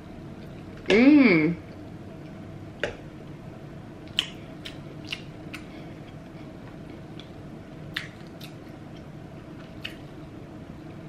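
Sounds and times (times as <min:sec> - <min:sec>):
low steady hum: 0:00.0 - 0:11.0
chewing soft food: 0:04.0 - 0:10.3
wet mouth clicks and smacks: 0:04.1 - 0:05.7, 0:07.9 - 0:08.6.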